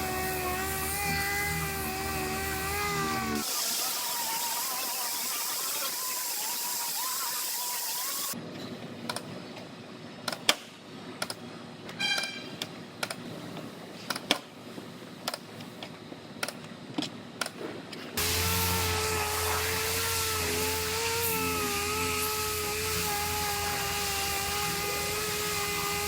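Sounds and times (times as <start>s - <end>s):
power tool whine: 0.0s - 8.4s, 18.2s - 26.0s.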